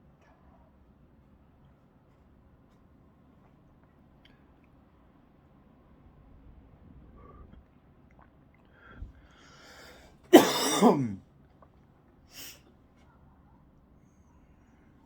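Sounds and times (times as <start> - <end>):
faint breathy sound: 7.0 - 7.7, 8.6 - 10.2
person drawing breath: 8.7 - 10.2
person coughing roughly: 10.3 - 11.2.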